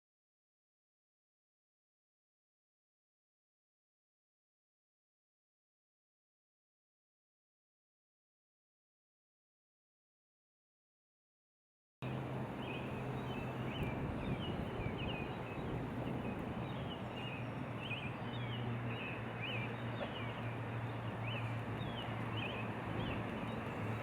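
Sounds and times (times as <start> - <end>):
boat motor humming: 12.0 - 24.0.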